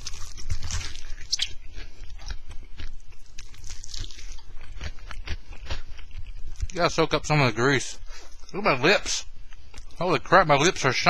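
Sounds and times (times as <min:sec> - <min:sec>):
person biting and chewing food: 0:00.0 - 0:06.8, 0:08.1 - 0:10.0.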